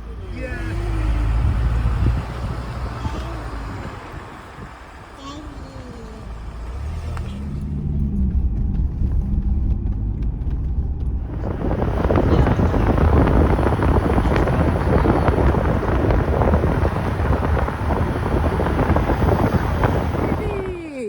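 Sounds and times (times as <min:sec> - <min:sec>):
low steady rumble: 0:00.0 - 0:21.0
wind noise on microphone: 0:00.0 - 0:21.0.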